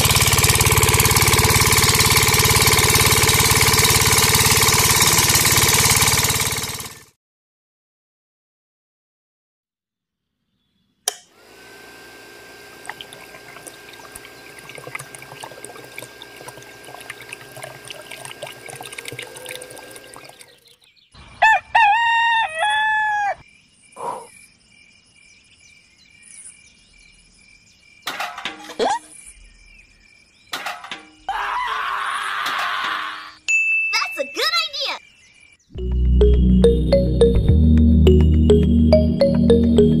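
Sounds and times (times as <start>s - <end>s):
small motor humming: 0.0s - 7.1s, 11.3s - 20.7s
rooster crowing: 21.4s - 23.4s.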